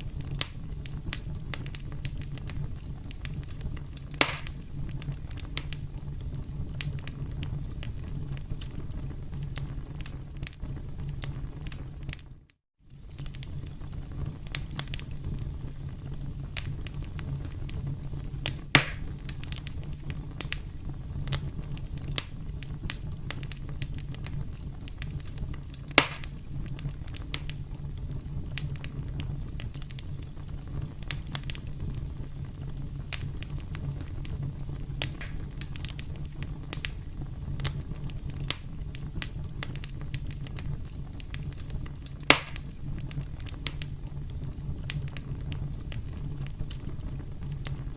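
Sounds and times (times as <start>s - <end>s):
campfire crackling: 0.0s - 47.9s
sharp loud fire pops: 3.5s - 4.6s, 18.4s - 19.2s, 25.9s - 26.4s, 35.0s - 35.9s, 42.2s - 42.7s.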